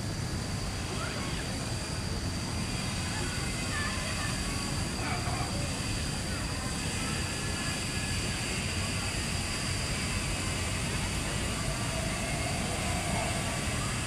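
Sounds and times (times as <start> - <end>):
low rumbling outdoor noise: 0.0 - 14.0.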